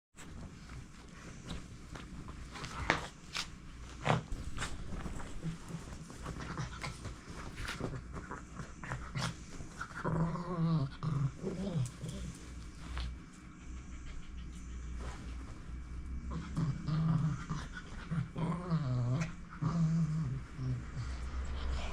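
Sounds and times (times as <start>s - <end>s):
dog panting: 12.1s - 15.4s.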